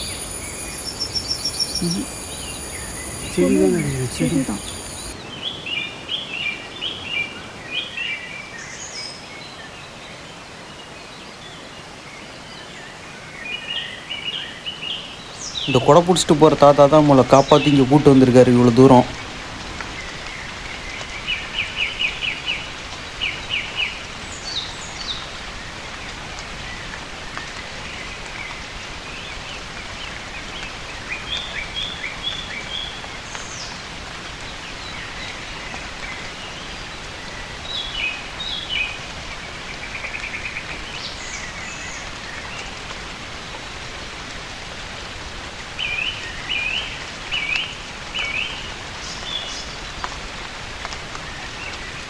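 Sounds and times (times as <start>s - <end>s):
birds chirping: 0.0s - 5.2s, 17.2s - 19.2s
rain on foliage: 0.0s - 7.9s, 14.0s - 52.0s.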